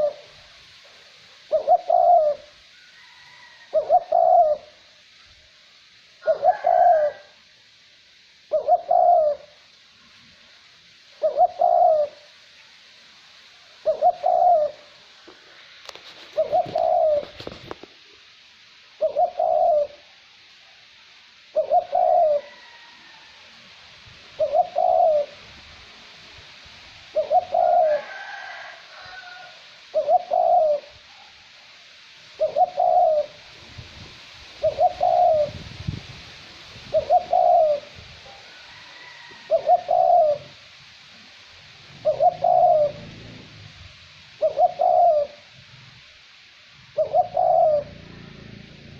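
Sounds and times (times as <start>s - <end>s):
dove cooing: 0.0s - 0.4s, 1.4s - 4.9s, 6.2s - 7.4s, 8.5s - 9.6s, 11.2s - 12.3s, 13.8s - 14.9s, 16.0s - 17.9s, 19.0s - 20.1s, 21.5s - 22.9s, 24.4s - 25.5s, 27.1s - 31.0s, 32.4s - 33.4s, 34.6s - 35.7s, 36.8s - 40.6s, 41.8s - 46.0s, 46.8s - 48.9s
light wind hiss: 0.0s - 48.9s.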